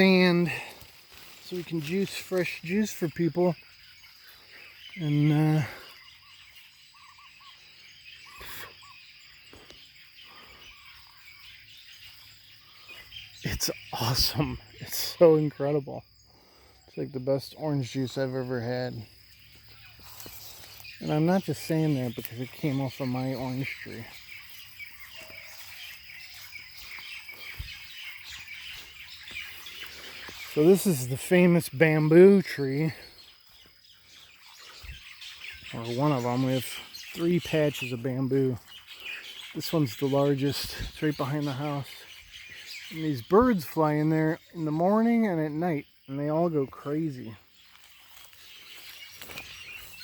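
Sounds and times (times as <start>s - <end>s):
bird calling: 0.0s - 50.0s
high insect drone: 0.0s - 50.0s.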